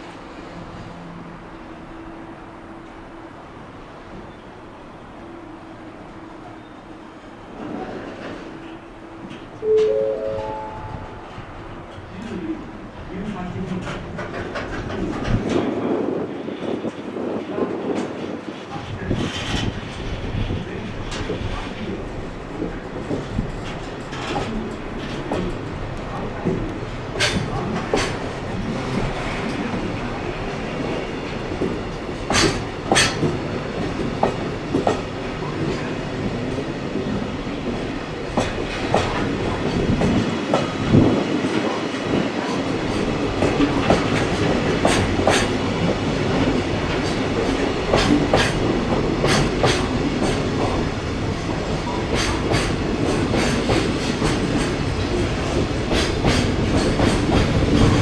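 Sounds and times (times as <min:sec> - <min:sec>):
train rumble: 0:00.0 - 0:58.0
wheels clacking over rail joints: 0:11.3 - 0:15.8, 0:17.9 - 0:58.0.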